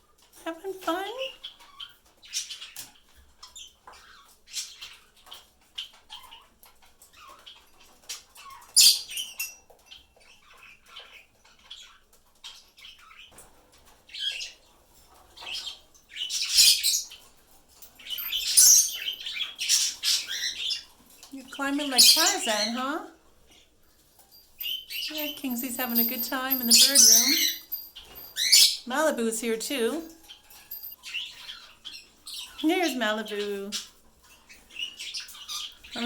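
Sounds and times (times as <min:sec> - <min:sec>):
parrots chirping: 0:15.4 - 0:23.0, 0:24.2 - 0:33.9.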